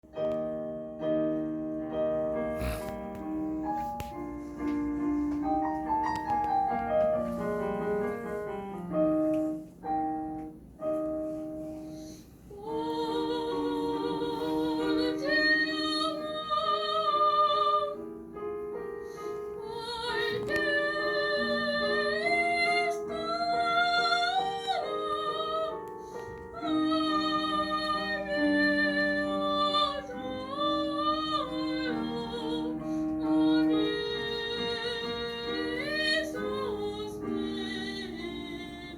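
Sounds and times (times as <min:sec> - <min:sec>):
piano accompaniment: 0:00.0 - 0:38.9
soprano singing opera: 0:12.5 - 0:18.0, 0:19.6 - 0:38.9.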